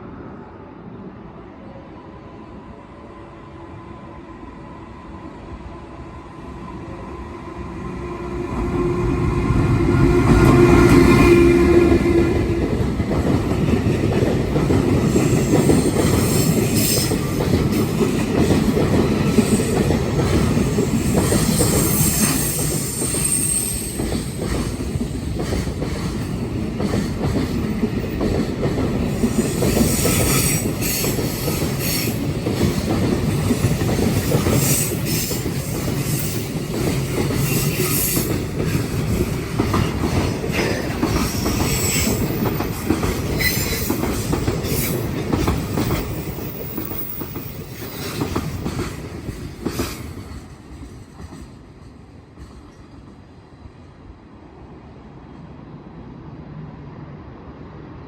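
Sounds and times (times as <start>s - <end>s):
train rumbling past: 0.0s - 58.0s
high wheel squeals: 21.5s - 24.1s.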